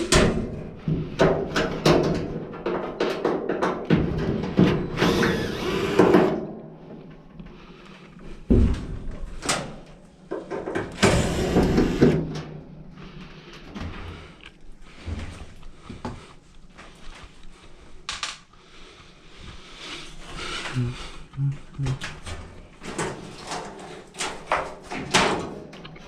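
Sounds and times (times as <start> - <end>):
dryer parts clunking and scraping: 0.0 - 5.3, 22.0 - 25.9.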